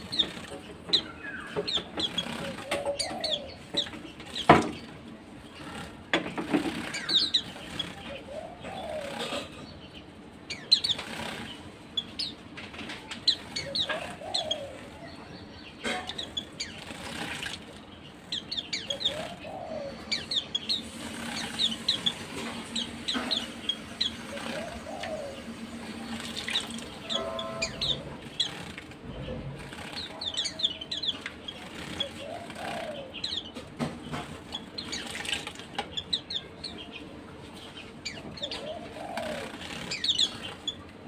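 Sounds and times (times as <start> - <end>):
small birds chirping: 0.0 - 41.0
wings fluttering: 16.2 - 17.9, 20.2 - 33.0.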